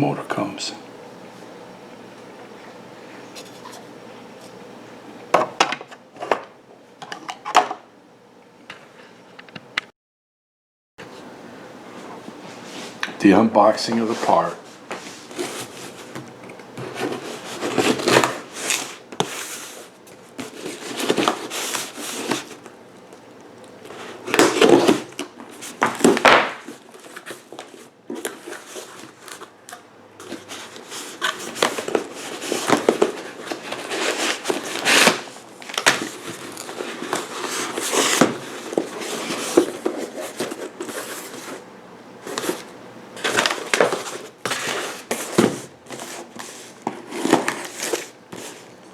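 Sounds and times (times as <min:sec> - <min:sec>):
packaging rustling: 0:15.2 - 0:48.9.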